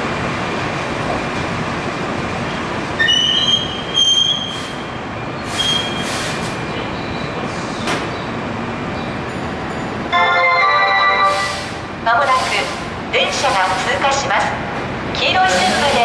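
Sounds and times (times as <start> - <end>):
train rumble: 0.0 - 16.0
train wheels squealing: 3.0 - 7.4
short hisses: 11.3 - 12.9.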